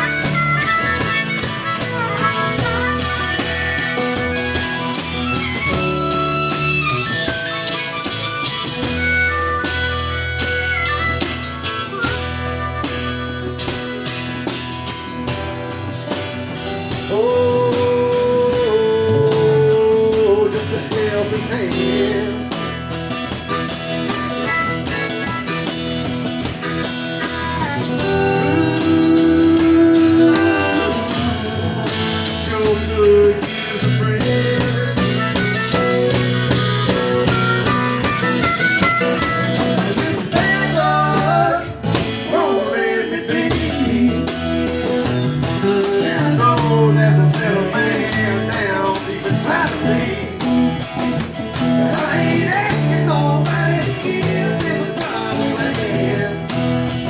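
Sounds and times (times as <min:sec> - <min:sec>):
harmonica: 0:00.0 - 0:16.3, 0:17.1 - 0:57.0
band playing: 0:00.0 - 0:57.0
guitar: 0:00.0 - 0:57.0.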